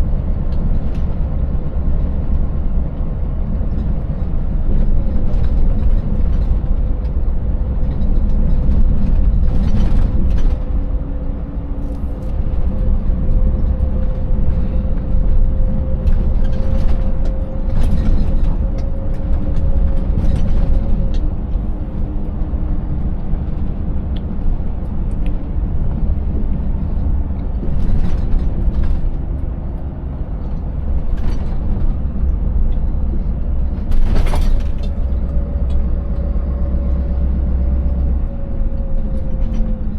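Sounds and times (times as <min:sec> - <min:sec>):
truck engine deep rumble: 0:00.0 - 0:39.9
truck clattering over rough road: 0:11.7 - 0:22.5, 0:25.9 - 0:36.0.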